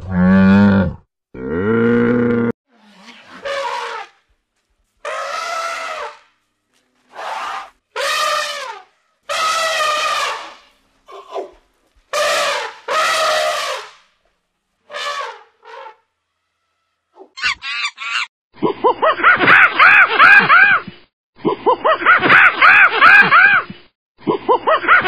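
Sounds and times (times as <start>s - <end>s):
elephant trumpeting: 2.7s - 4.2s, 5.0s - 6.3s, 7.1s - 11.5s, 12.1s - 14.0s.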